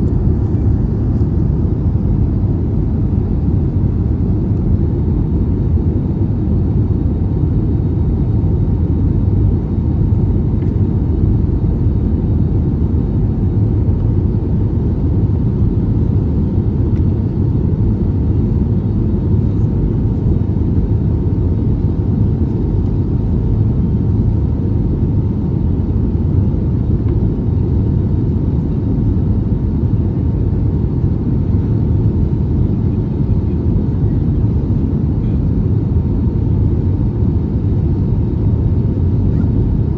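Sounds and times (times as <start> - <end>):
aircraft cabin engine drone: 0.0 - 39.9
faint constant hum: 0.0 - 39.9.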